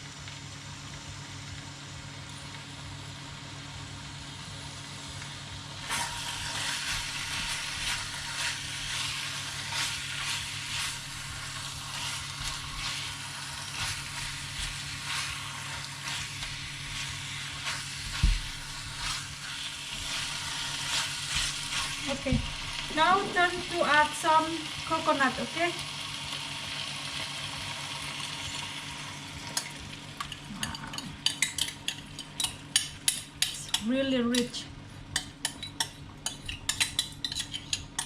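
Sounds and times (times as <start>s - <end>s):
food sizzling in a pan: 0.0s - 38.0s
utensil scraping a pan: 5.8s - 23.8s, 35.4s - 38.0s.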